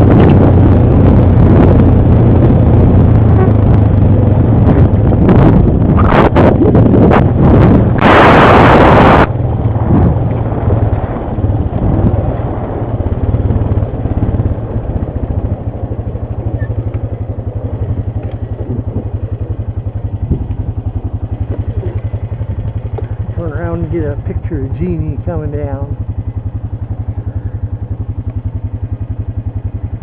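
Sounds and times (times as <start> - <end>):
wind noise on microphone: 0.0 - 30.0
atv engine idling: 9.3 - 30.0.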